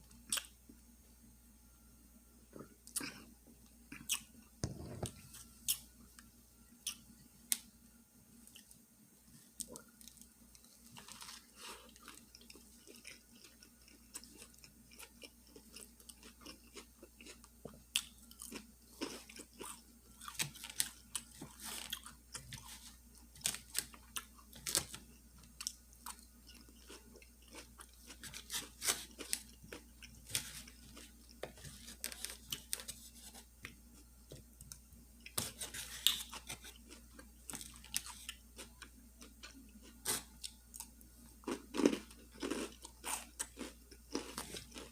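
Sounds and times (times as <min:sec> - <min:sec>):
chewing with crunches: 0:02.5 - 0:03.3, 0:09.5 - 0:34.1, 0:35.2 - 0:44.9.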